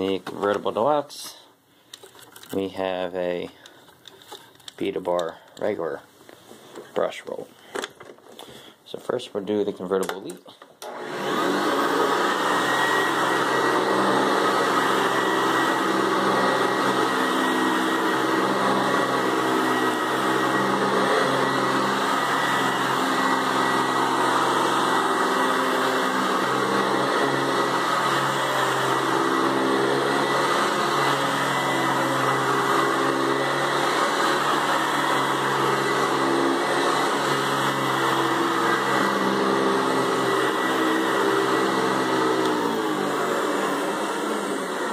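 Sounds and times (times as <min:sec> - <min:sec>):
upright vacuum cleaner running: 0:10.8 - 0:44.9.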